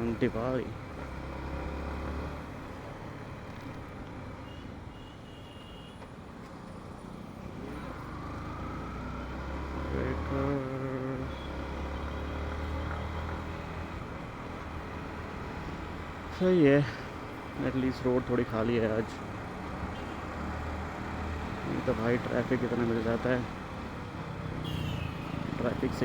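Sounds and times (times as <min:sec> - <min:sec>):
road noise: 0:00.0 - 0:26.0
vehicle horn: 0:04.4 - 0:06.0, 0:19.9 - 0:20.2, 0:24.6 - 0:25.4
motorcycle engine: 0:07.1 - 0:16.3, 0:19.3 - 0:26.0.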